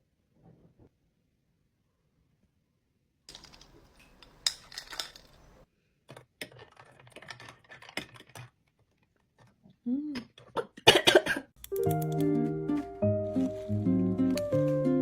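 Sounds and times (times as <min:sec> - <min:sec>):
small hard objects clicking: 0:11.6 - 0:12.4.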